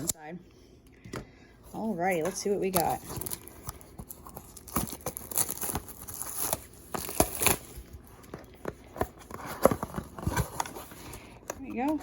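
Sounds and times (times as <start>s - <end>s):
packaging tearing and crinkling: 2.7s - 8.2s.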